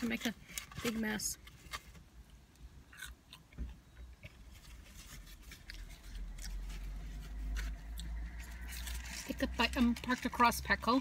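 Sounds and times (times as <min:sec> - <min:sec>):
person chewing fries: 0:02.9 - 0:03.6, 0:05.4 - 0:09.2.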